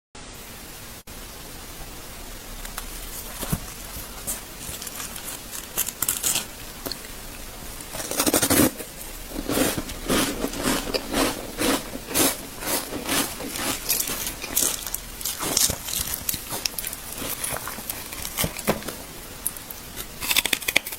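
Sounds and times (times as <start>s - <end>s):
person crunching ice: 2.8s - 6.5s, 7.9s - 20.9s.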